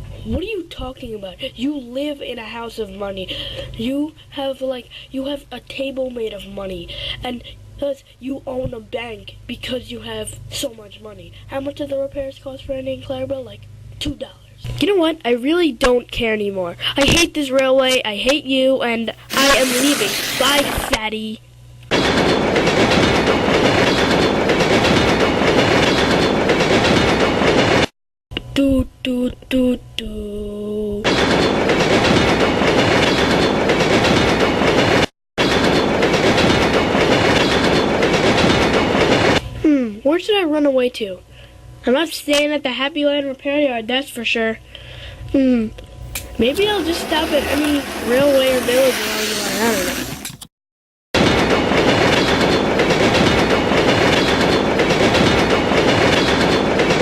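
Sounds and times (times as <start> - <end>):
toy train motor and wheels: 19.1 - 20.9, 46.1 - 50.5
train wheels rattling on track: 46.1 - 49.2, 51.2 - 57.0.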